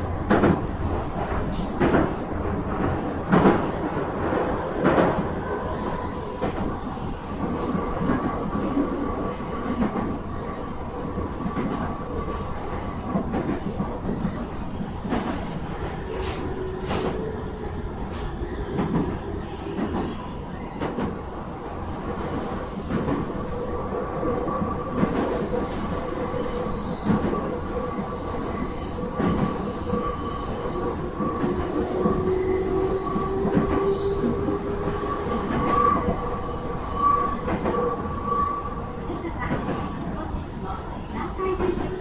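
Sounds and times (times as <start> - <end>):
train wheels rumbling on rail: 0.0 - 42.0
high-pitched squeal tones: 24.3 - 38.9.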